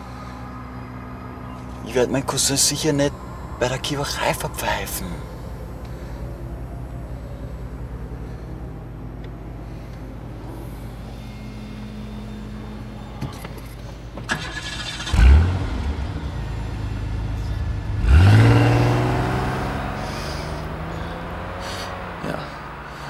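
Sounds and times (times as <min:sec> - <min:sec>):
car engine starting and revving: 0:14.3 - 0:23.0.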